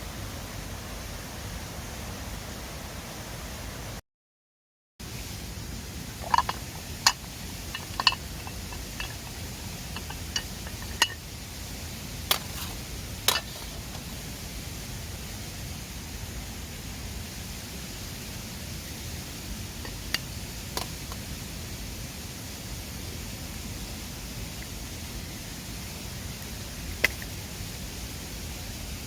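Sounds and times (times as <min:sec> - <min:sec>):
mountain river rushing: 0:05.1 - 0:24.6.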